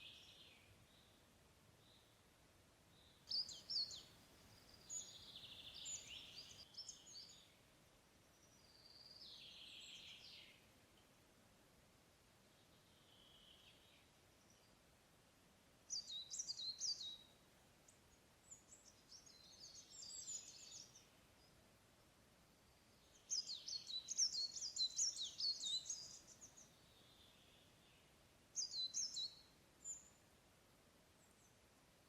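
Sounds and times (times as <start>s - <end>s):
songbirds twittering: 2.9s - 11.2s, 15.9s - 21.6s, 22.6s - 30.2s.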